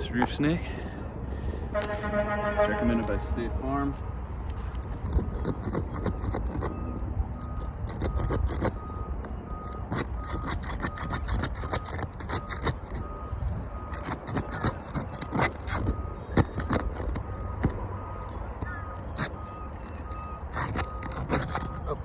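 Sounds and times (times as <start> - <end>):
short high beep: 1.8 - 3.4
shingles scraping and crackling: 4.5 - 22.0.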